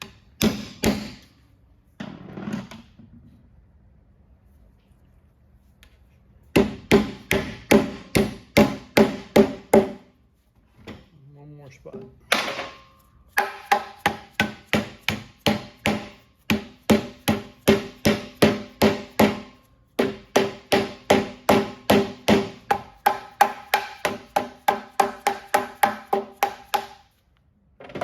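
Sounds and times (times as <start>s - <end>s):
hammer striking nails into metal: 0.0s - 1.3s, 6.6s - 10.0s, 13.4s - 27.1s.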